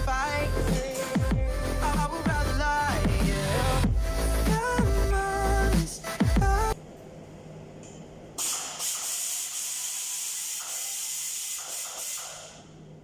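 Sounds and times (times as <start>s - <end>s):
pressurised spray hissing: 8.4s - 12.4s.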